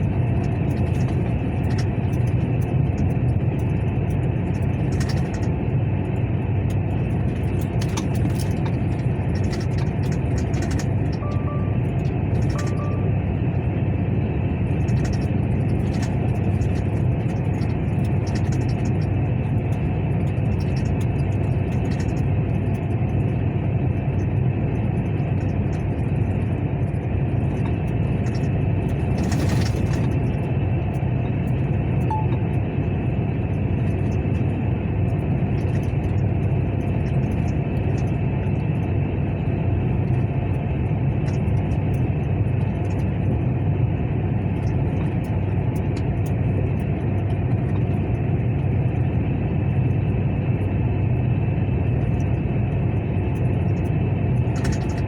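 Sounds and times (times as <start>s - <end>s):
truck engine rumbling: 0.0s - 23.4s, 24.0s - 37.0s.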